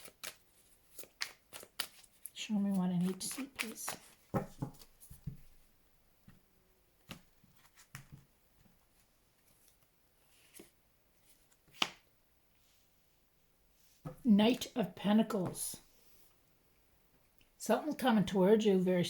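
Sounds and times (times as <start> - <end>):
cards shuffling and flicking: 0.0 - 5.5, 10.4 - 12.1.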